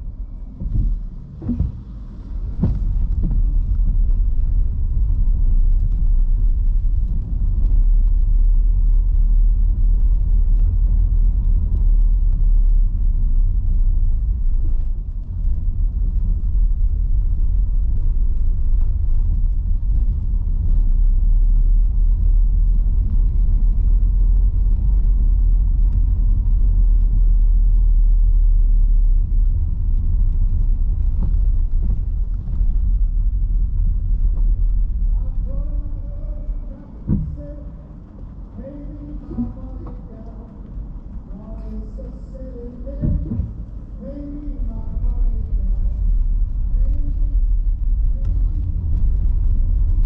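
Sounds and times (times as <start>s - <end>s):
rain ticking on car: 0.0s - 50.0s
tyre and road noise: 0.0s - 50.0s.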